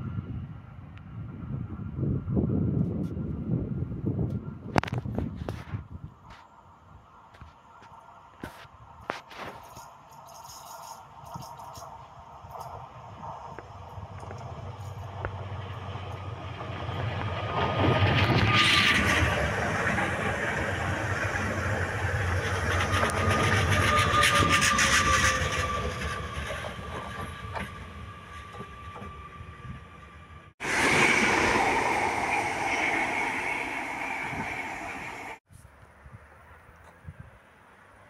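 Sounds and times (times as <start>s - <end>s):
train high whine: 6.3s - 35.4s.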